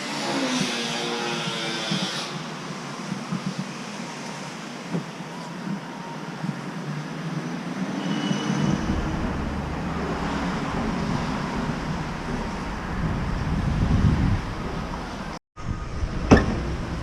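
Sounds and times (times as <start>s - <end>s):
excavator diesel engine running: 8.6s - 17.0s.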